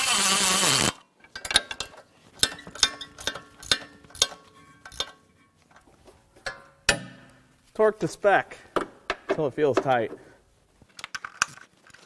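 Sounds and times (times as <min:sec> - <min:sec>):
socket ratchet clicking: 0:00.1 - 0:05.2.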